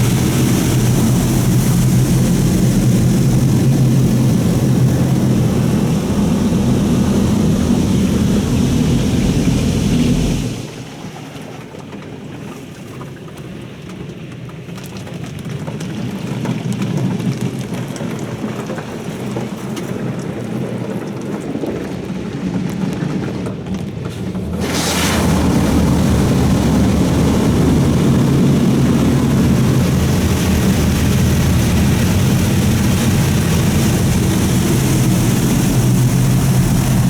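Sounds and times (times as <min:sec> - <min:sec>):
car wash spray: 0:00.0 - 0:10.8, 0:23.9 - 0:37.0
low machine hum: 0:00.0 - 0:10.9, 0:24.1 - 0:37.0
water pattering on car: 0:00.0 - 0:37.0.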